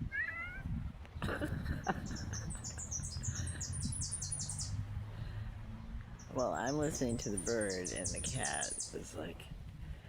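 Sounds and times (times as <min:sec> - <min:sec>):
songbird singing high notes: 0:02.4 - 0:04.8, 0:06.2 - 0:09.3.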